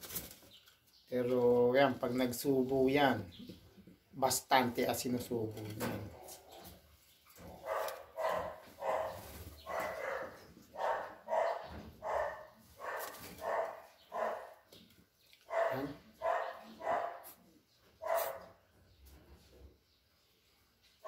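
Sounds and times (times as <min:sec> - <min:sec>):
dog barking: 0:07.6 - 0:14.6, 0:15.5 - 0:17.4, 0:18.0 - 0:18.6.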